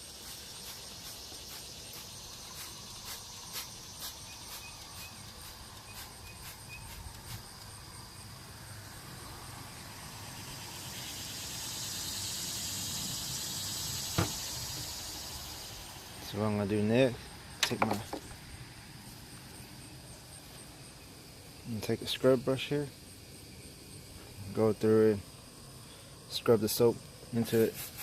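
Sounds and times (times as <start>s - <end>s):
water spraying on engine: 0.0s - 7.3s, 10.1s - 16.3s
high pulsing chirp: 9.1s - 16.0s.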